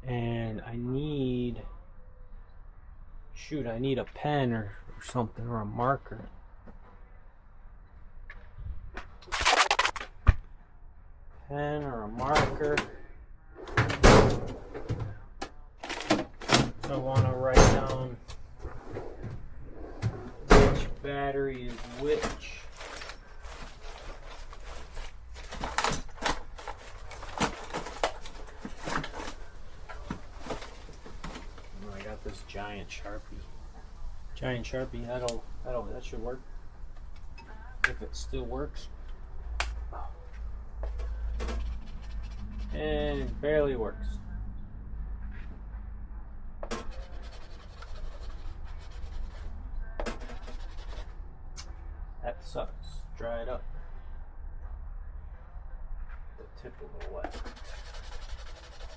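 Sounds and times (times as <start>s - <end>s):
marker scratching on surface: 41.6s - 43.3s, 46.8s - 49.6s, 50.2s - 51.2s, 57.3s - 58.9s.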